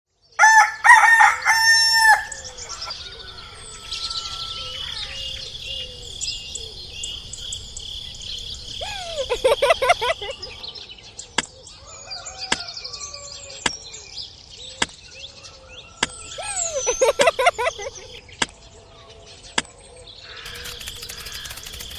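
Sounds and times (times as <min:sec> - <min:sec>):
rooster crowing: 0:00.4 - 0:05.4, 0:11.8 - 0:13.6
bird call: 0:00.4 - 0:10.7, 0:15.9 - 0:18.2, 0:20.2 - 0:21.9
small birds chirping: 0:01.3 - 0:21.9.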